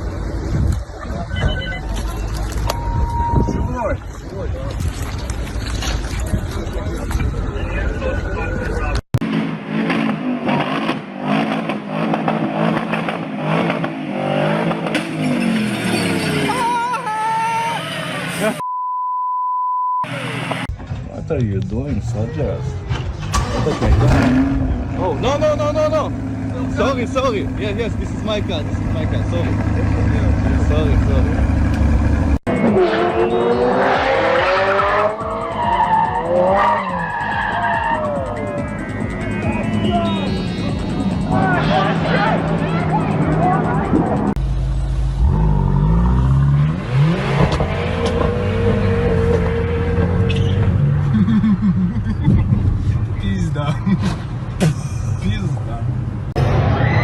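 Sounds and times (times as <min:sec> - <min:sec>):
road noise: 0:00.0 - 0:18.6, 0:20.0 - 0:57.0
car tyres squealing: 0:01.0 - 0:04.1, 0:14.8 - 0:18.6, 0:22.0 - 0:44.3, 0:45.2 - 0:51.0
vehicle engine revving: 0:09.2 - 0:16.5, 0:23.1 - 0:37.5, 0:38.2 - 0:51.3.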